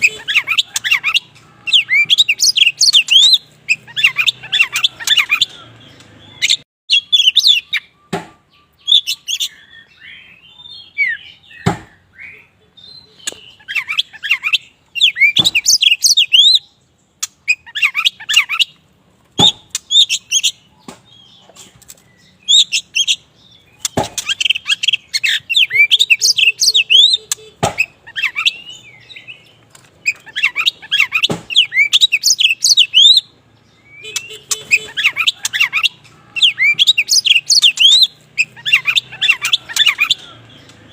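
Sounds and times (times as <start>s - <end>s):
sharp bird clicks: 13.2s - 16.5s, 17.2s - 18.8s, 19.4s - 33.2s
bird singing whistled phrases: 23.8s - 29.4s, 30.1s - 40.3s.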